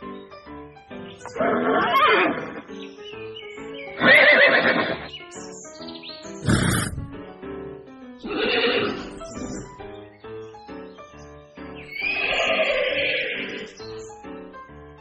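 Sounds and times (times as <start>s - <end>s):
background music: 0.0s - 15.0s
horse whinnying: 1.3s - 2.7s, 4.0s - 5.1s, 6.4s - 7.2s, 8.2s - 9.2s, 12.0s - 13.8s.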